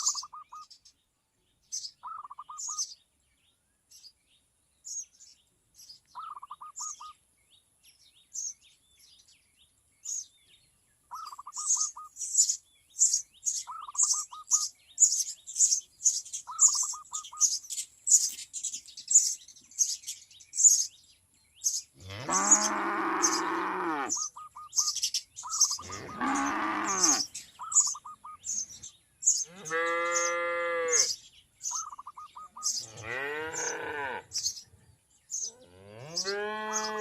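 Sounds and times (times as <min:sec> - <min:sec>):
small birds chirping: 0:00.0 - 0:37.0
low rippling bird trill: 0:11.1 - 0:12.5, 0:13.6 - 0:17.7, 0:22.4 - 0:34.6.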